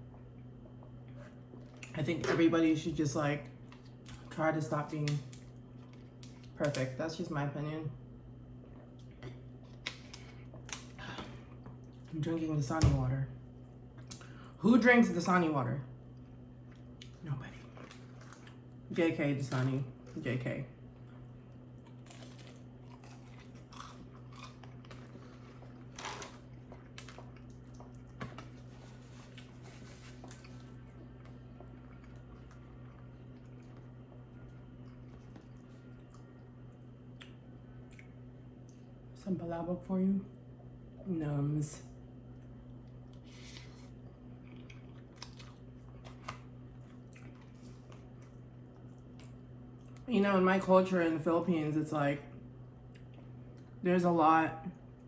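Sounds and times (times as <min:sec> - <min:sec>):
steady low hum: 0:00.0 - 0:55.0
chewing and biting food: 0:20.9 - 0:38.9, 0:42.3 - 0:50.0.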